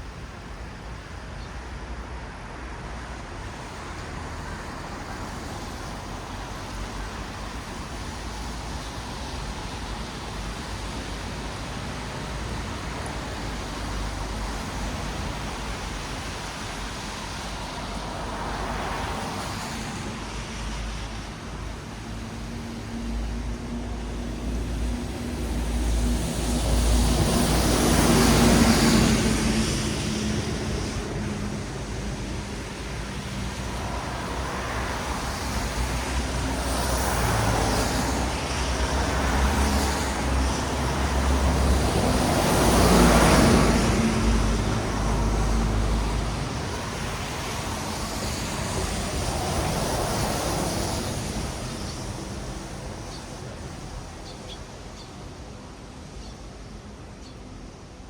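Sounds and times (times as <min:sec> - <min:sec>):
tyres hissing on wet asphalt: 0:00.0 - 0:58.0.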